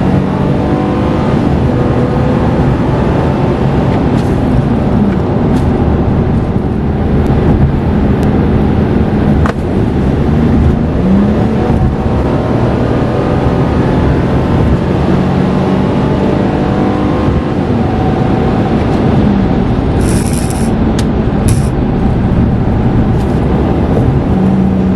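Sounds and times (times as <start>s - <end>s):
road noise: 0.0s - 24.9s
car engine running: 19.3s - 24.9s.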